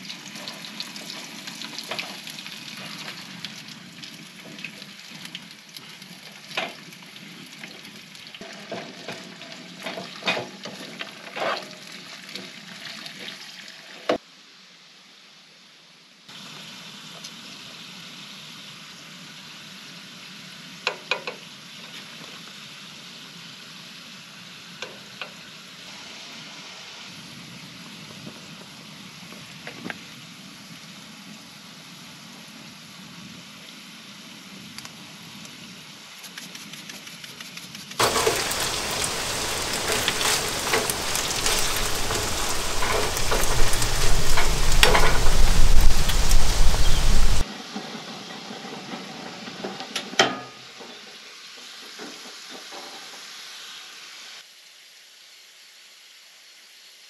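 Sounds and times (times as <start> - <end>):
potatoes sizzling in a skillet: 0.0 - 15.4, 16.3 - 36.1, 38.0 - 57.0
loud rushing noise: 38.0 - 47.4.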